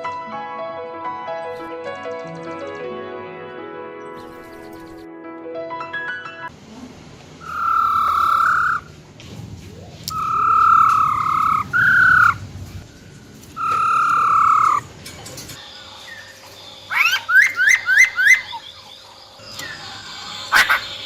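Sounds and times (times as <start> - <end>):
bird calling long level notes: 4.2 - 5.1, 7.4 - 9.0, 10.1 - 14.9, 15.6 - 21.0.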